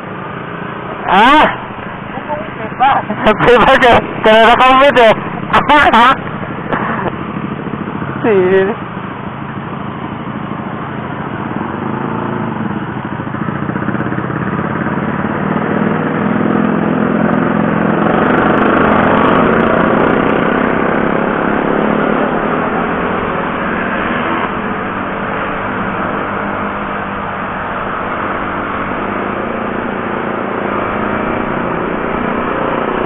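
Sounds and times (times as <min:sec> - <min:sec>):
motorcycle engine accelerating: 0:00.0 - 0:33.0
road and wind noise: 0:00.0 - 0:33.0.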